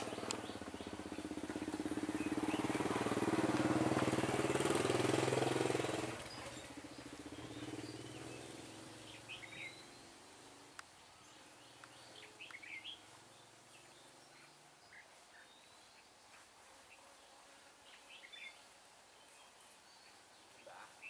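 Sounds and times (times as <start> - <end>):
motorbike engine hum: 0.0 - 13.6.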